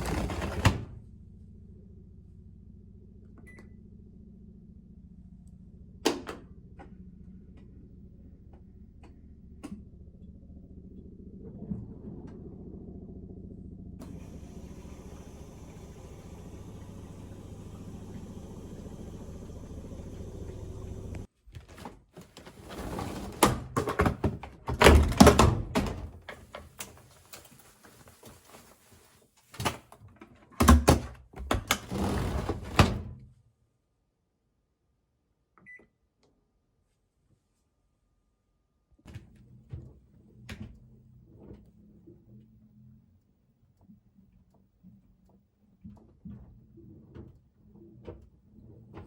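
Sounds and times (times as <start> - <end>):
washing machine humming: 0.0 - 1.4, 6.4 - 33.3
knocks and thuds of machine handling: 23.5 - 26.9.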